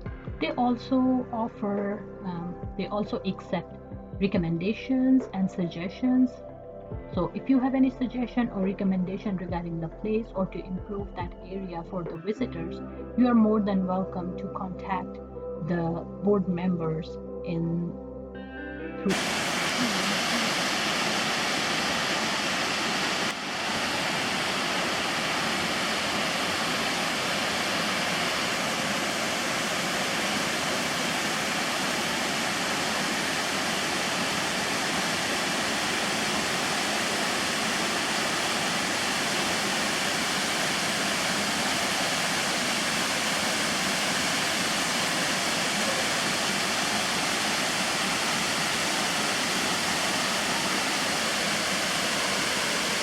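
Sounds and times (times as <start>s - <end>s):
waterfall rushing: 19.1s - 53.0s.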